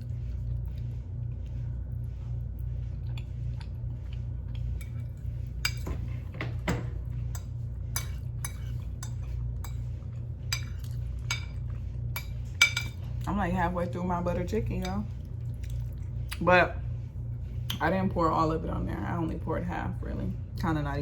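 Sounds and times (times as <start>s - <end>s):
steady low hum: 0.0s - 21.0s
cutlery clinking on a plate: 12.2s - 13.0s.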